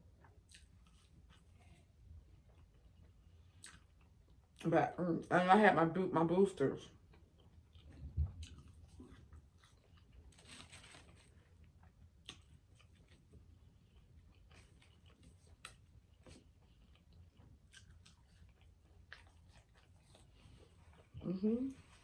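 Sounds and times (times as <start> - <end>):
faint chewing and crunching: 0.0 - 5.0, 6.8 - 22.0.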